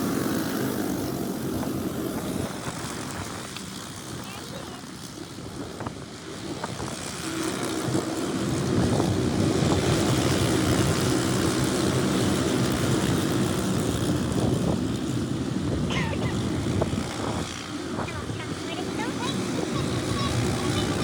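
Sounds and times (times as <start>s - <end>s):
go-kart engine running: 0.0s - 21.0s.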